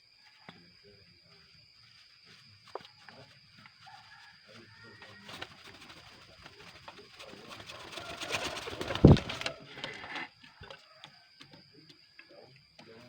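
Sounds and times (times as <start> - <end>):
pigeons rustling: 5.1 - 10.3
pigeons cooing: 5.3 - 10.2.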